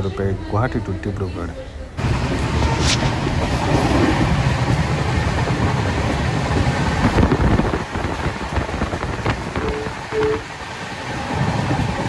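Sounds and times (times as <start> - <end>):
train wheels rumbling on rails: 2.0 - 12.0.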